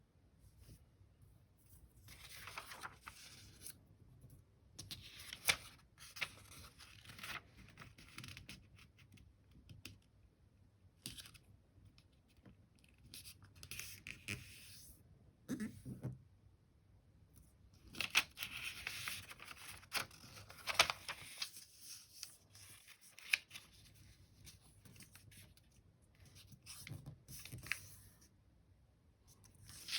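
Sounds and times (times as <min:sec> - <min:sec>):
paper rustling and creasing: 0:02.0 - 0:03.8, 0:04.9 - 0:08.5, 0:17.8 - 0:25.6.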